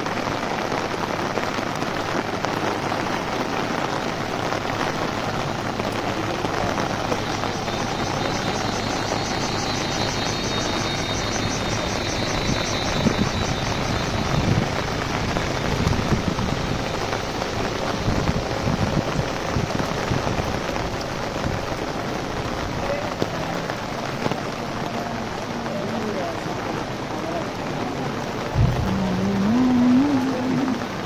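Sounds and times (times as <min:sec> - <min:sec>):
heavy rain on umbrella: 0:00.0 - 0:31.0
high-pitched pulsing: 0:07.1 - 0:14.7, 0:28.6 - 0:30.8.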